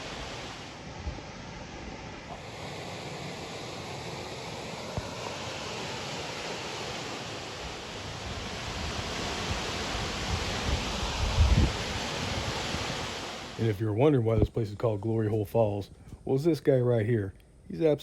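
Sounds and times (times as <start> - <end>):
wind rumble on microphone: 0.0 - 3.4, 7.5 - 14.6
waterfall rushing: 0.0 - 13.6.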